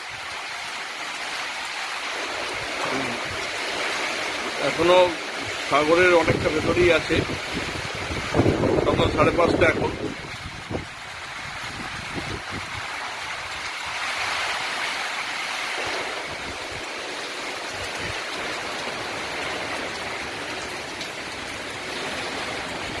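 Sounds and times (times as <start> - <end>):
wind buffeting microphone: 5.5 - 13.6
strong wind rushing: 6.1 - 12.8.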